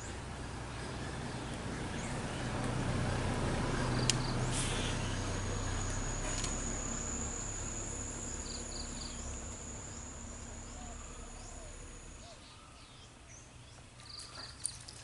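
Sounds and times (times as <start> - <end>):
low engine rumble: 0.0 - 15.0
insect trilling: 3.9 - 12.2.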